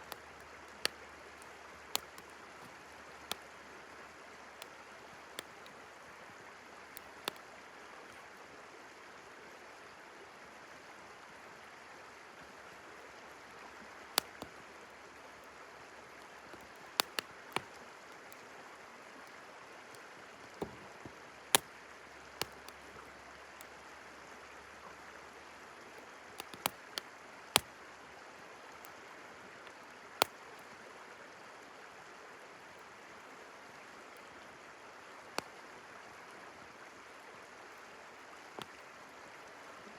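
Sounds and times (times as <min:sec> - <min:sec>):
campfire crackling and popping: 0:00.0 - 0:03.6, 0:04.5 - 0:05.8, 0:06.9 - 0:07.5, 0:14.0 - 0:18.4, 0:21.5 - 0:23.8, 0:26.3 - 0:27.8, 0:30.2 - 0:30.4, 0:38.6 - 0:38.9
river flowing: 0:00.0 - 0:39.9.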